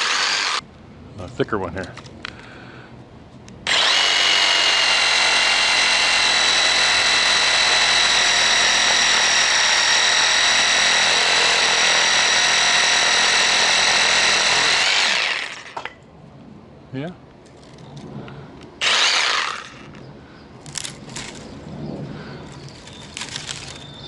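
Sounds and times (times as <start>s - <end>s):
reciprocating saw cutting wood: 0.0s - 0.6s, 3.7s - 15.8s, 18.8s - 19.9s.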